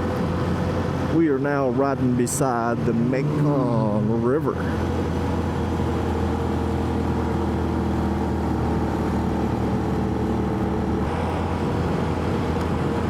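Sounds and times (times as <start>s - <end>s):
wind and road rush: 0.0s - 13.0s
motorcycle engine cruising: 2.3s - 13.0s.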